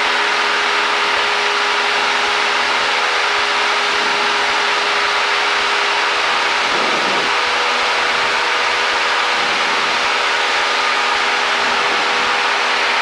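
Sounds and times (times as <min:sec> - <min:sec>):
airplane engine and propeller drone: 0:00.0 - 0:13.0
rushing air: 0:05.2 - 0:13.0.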